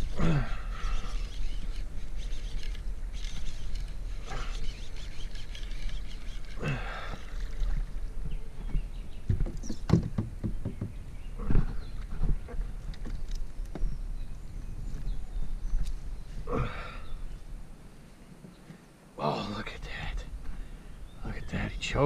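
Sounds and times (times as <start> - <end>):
bird harsh calls: 0.0 - 7.7.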